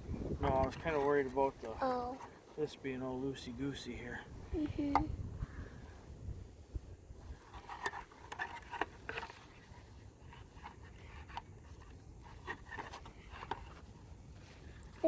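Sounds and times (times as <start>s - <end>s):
clicks and scrapes of handling: 7.3s - 15.0s.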